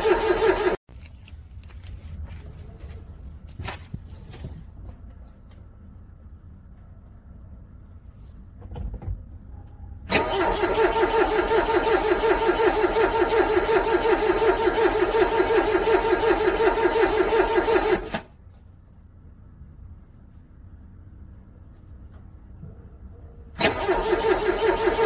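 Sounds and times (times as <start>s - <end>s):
car engine cranking: 0.0s - 0.8s, 10.1s - 18.4s, 23.5s - 25.0s.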